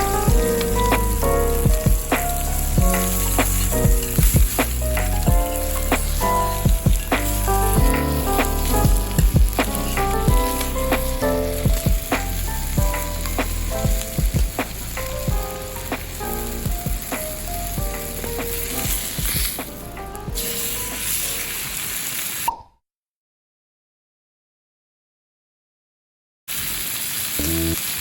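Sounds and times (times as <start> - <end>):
food sizzling in oil: 0.0 - 19.8, 20.4 - 22.5, 26.5 - 28.0
oil popping and spattering: 0.0 - 19.8.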